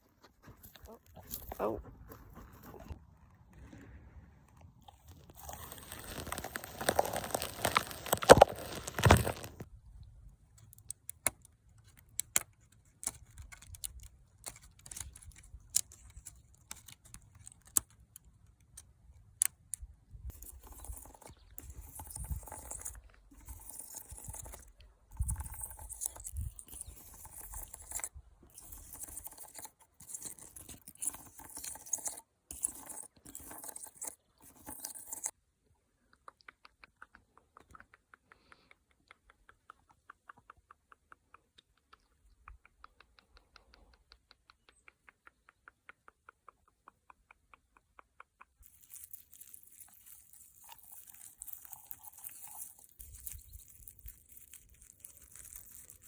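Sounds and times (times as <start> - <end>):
crinkly rustling: 4.8 - 9.7, 20.3 - 35.3, 48.6 - 56.0.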